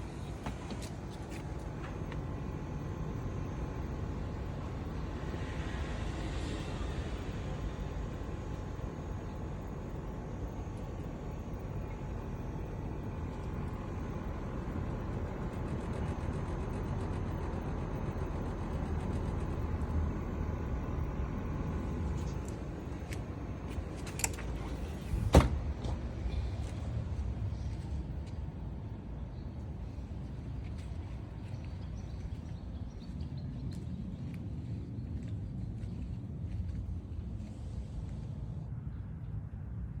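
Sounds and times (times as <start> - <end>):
distant road traffic rumble: 0.0 - 40.0.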